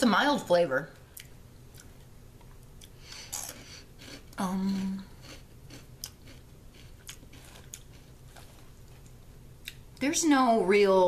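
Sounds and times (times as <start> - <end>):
crunchy snack chewing: 1.8 - 9.8
person humming mmm: 4.4 - 5.2.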